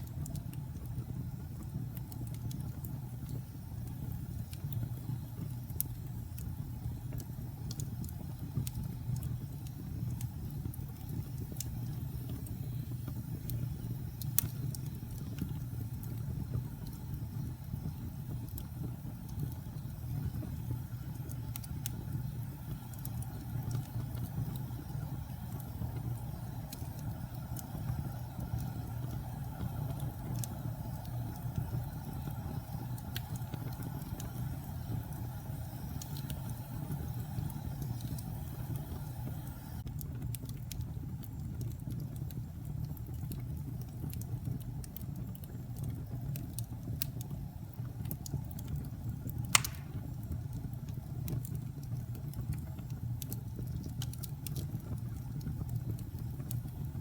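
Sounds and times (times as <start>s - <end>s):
fire crackles: 0.0s - 57.0s
fire rumbling in fireplace: 0.0s - 57.0s
sharp pop: 49.6s - 50.0s.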